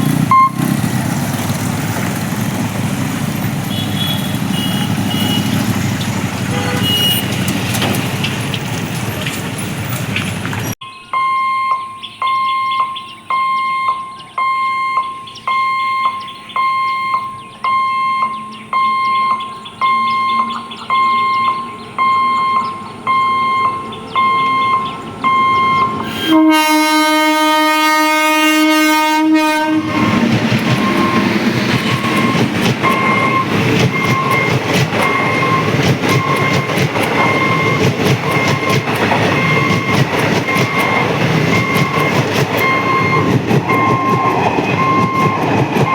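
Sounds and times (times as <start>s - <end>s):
train wheels clattering past: 0.0s - 10.8s, 29.3s - 45.9s
level crossing alarm beeping: 0.3s - 0.8s, 6.5s - 7.5s, 10.8s - 45.9s
train horn blast: 3.7s - 5.8s, 6.4s - 7.4s, 26.0s - 30.2s.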